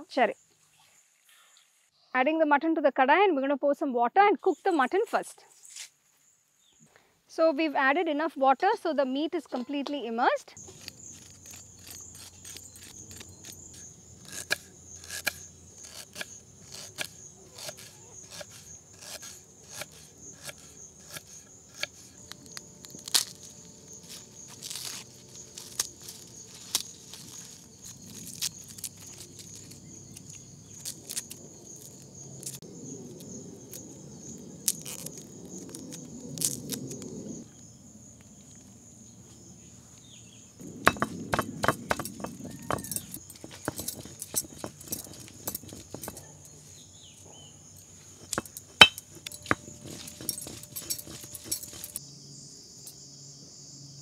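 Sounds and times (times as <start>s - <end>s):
garlic skins pulled off: 10.6s - 32.6s, 34.6s - 37.1s, 49.2s - 52.0s
knife peeling ginger: 10.6s - 32.6s, 48.2s - 52.0s.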